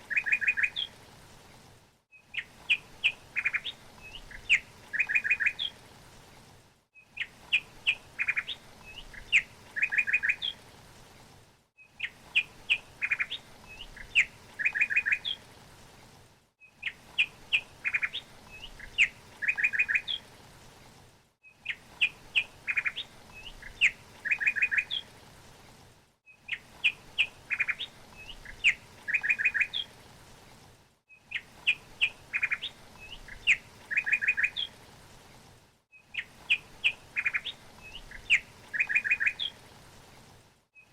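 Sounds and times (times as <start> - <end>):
songbird chirping: 0.0 - 1.0, 2.1 - 5.8, 7.0 - 10.6, 11.8 - 15.4, 16.6 - 20.3, 21.4 - 25.1, 26.3 - 30.0, 31.1 - 34.8, 35.9 - 39.6.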